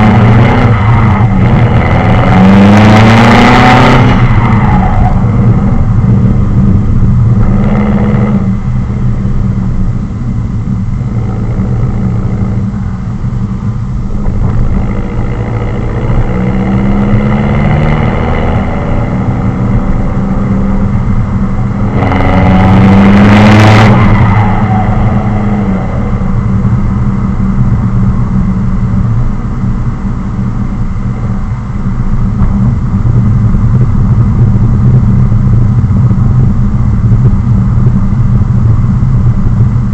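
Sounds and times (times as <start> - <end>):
loud car exhaust while driving: 0.0 - 39.9.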